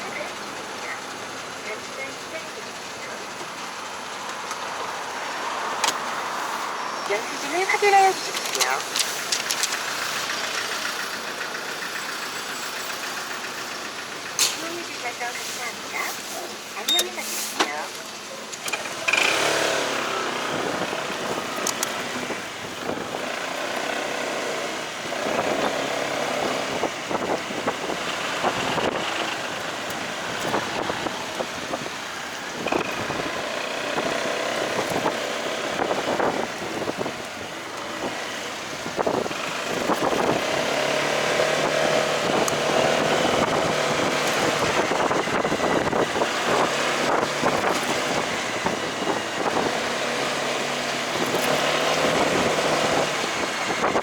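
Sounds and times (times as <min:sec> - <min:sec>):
motorcycle engine running: 0:08.3 - 0:16.9, 0:18.6 - 0:54.0
wind on microphone: 0:30.2 - 0:54.0.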